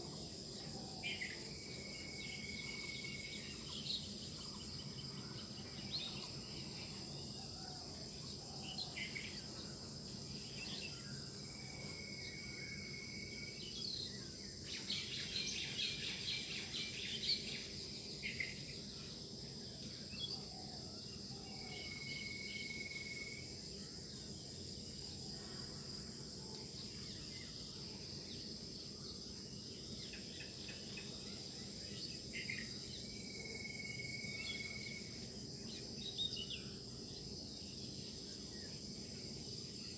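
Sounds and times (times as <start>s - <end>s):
high insect trill: 0.0s - 39.9s
birds singing: 13.6s - 19.0s.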